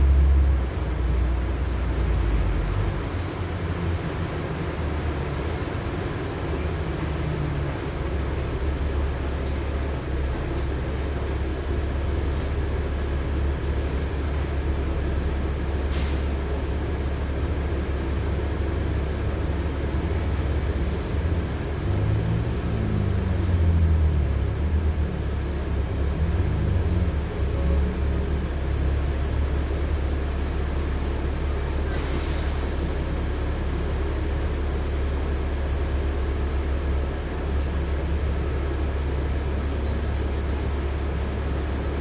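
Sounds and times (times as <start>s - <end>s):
bus engine and road rumble: 0.0s - 42.0s.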